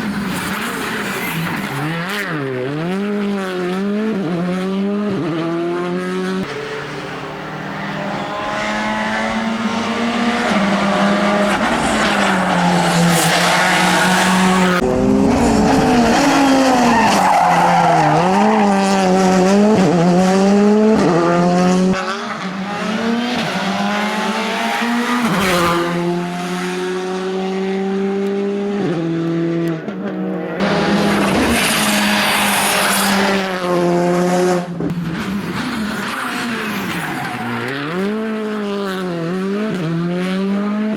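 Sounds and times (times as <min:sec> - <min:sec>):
rally car engines revving: 0:00.0 - 0:40.9
tyres squealing and skidding: 0:07.0 - 0:19.8, 0:23.5 - 0:25.9, 0:30.6 - 0:33.4, 0:35.2 - 0:38.0.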